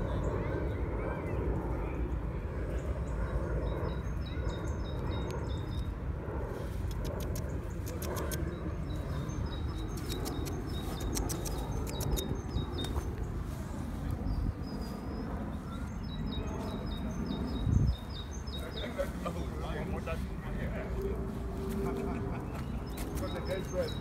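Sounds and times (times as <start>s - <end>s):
low microphone rumble: 0.0s - 23.2s
small birds chirping: 6.6s - 24.0s
sharp clicks: 6.9s - 8.5s, 9.9s - 13.0s.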